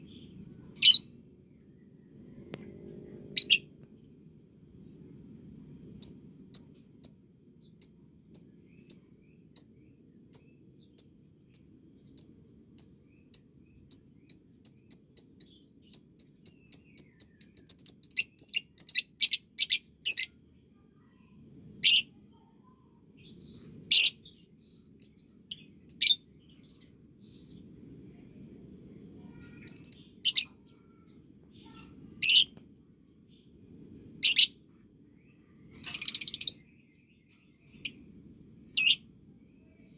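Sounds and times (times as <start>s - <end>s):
lovebird chirping and chattering: 0.0s - 1.1s, 3.3s - 3.7s, 5.9s - 9.7s, 10.3s - 20.4s, 21.8s - 22.2s, 23.2s - 24.4s, 25.0s - 27.5s, 29.3s - 32.5s, 34.2s - 34.5s, 35.7s - 36.6s, 37.5s - 38.0s, 38.7s - 39.0s.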